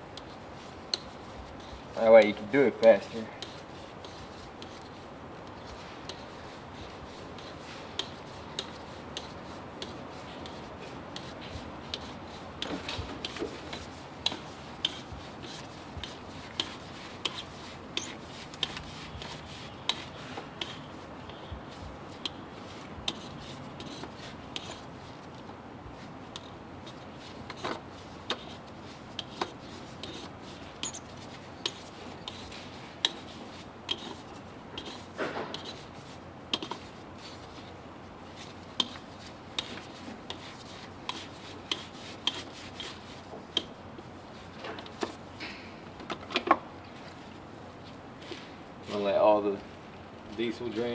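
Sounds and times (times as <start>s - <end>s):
light clicks and rubbing: 26.3s - 50.9s.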